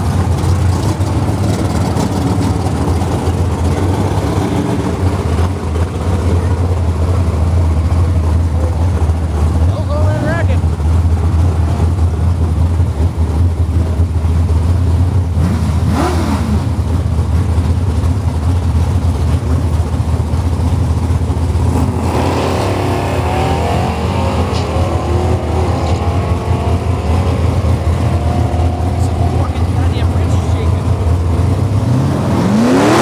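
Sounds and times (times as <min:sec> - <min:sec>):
engines idling: 0:00.0 - 0:33.0
vehicles accelerating away: 0:00.0 - 0:33.0
engine revving: 0:15.2 - 0:17.0, 0:21.5 - 0:33.0.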